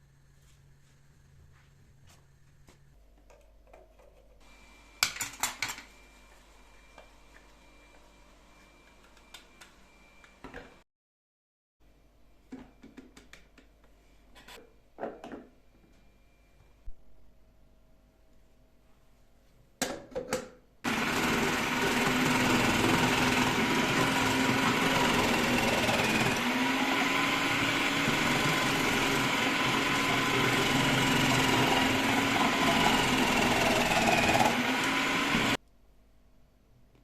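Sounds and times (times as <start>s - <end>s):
food chopper motor running: 20.9s - 35.6s.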